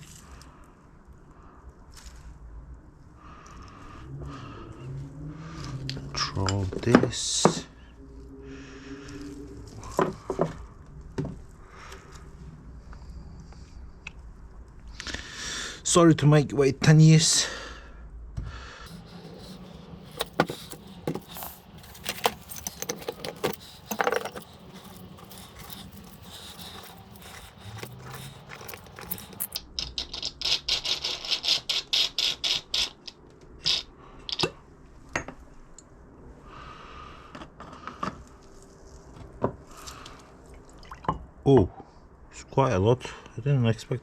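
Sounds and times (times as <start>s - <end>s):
hand tools clinking on metal: 18.9s - 29.6s
repeated scraping strokes: 18.9s - 29.6s.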